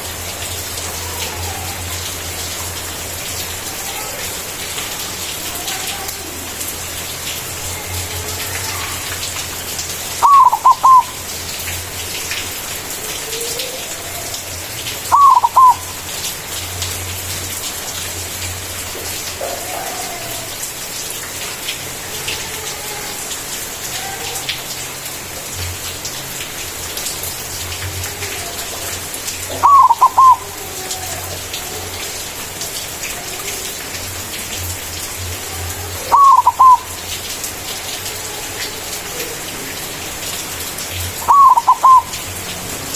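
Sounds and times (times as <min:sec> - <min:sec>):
dove cooing: 0:10.2 - 0:11.2, 0:15.1 - 0:16.0, 0:19.4 - 0:20.6, 0:29.5 - 0:31.4, 0:36.0 - 0:37.0, 0:41.2 - 0:42.2.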